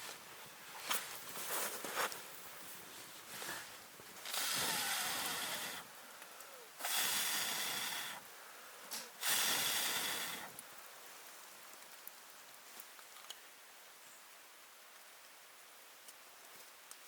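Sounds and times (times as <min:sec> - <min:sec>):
hard breaths blown out: 0:03.3 - 0:10.6.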